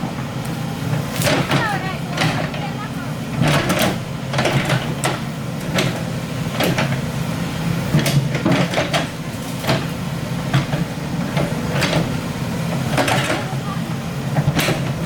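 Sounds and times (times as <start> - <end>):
excavator diesel engine running: 0.0 - 15.0
sharp knocks and clanks: 3.3 - 7.1, 7.9 - 12.2, 12.8 - 13.6, 14.4 - 15.0.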